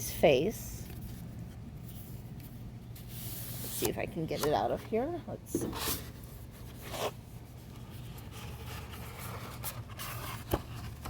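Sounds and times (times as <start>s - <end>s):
paper rustling and scraping: 5.6s - 11.0s.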